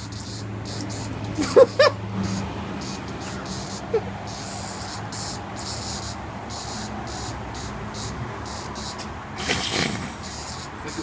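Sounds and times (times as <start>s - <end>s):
low engine hum: 0.0s - 11.0s
road traffic noise: 0.0s - 11.0s
pulsing high hiss: 2.2s - 11.0s.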